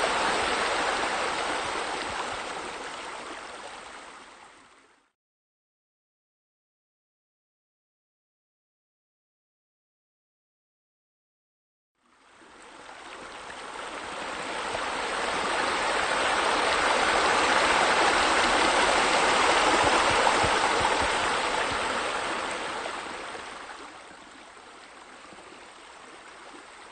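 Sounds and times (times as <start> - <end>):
water running and splashing: 13.1 - 26.9.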